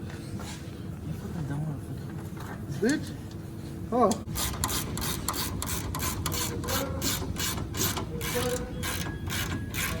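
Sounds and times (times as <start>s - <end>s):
ratchet wrench clicking: 4.3s - 10.0s.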